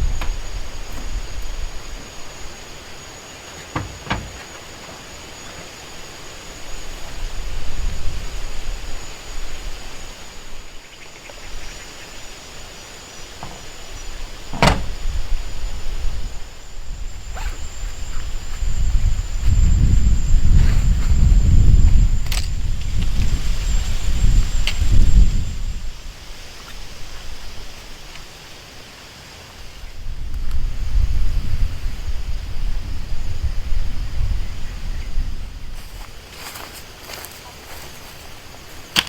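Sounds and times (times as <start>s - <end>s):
low outdoor rumbling: 0.0s - 10.8s, 11.6s - 24.6s
sharp knocks: 3.6s - 5.0s, 14.5s - 15.0s.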